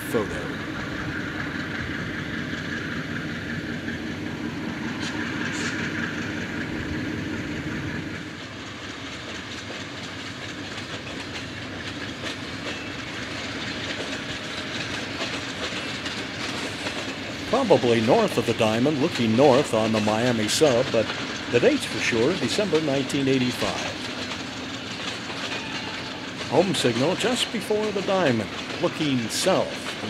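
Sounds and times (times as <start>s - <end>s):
low train hum: 0.0s - 30.0s
wheels clacking over rail joints: 0.0s - 30.0s.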